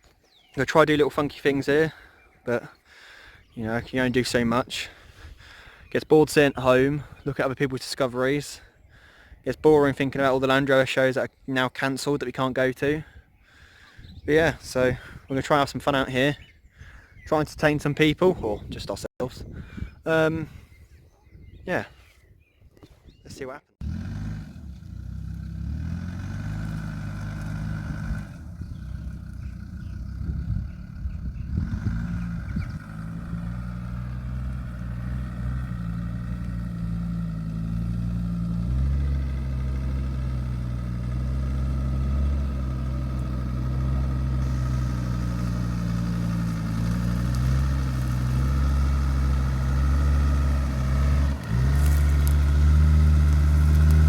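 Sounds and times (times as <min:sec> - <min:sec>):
diesel engine revving off-road: 0:23.8 - 0:54.0.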